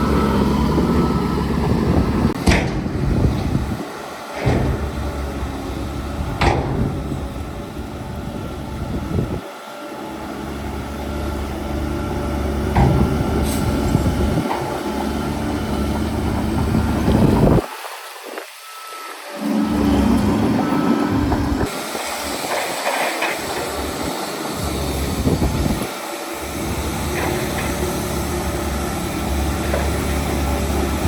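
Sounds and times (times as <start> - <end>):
heavy diesel engine running: 0.0 - 17.6, 19.3 - 31.0
sharp metallic knocks: 2.3 - 7.6, 12.7 - 15.2.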